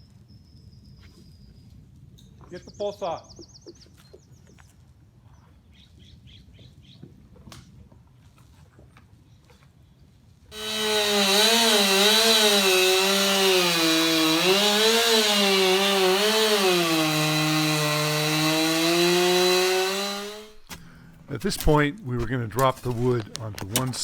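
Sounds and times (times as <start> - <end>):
chainsaw cutting wood: 10.5 - 24.0.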